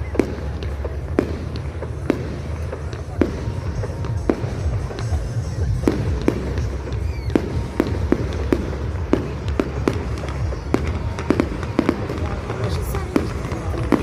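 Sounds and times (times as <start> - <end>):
fireworks bangs: 0.0 - 14.0
music: 0.0 - 14.0.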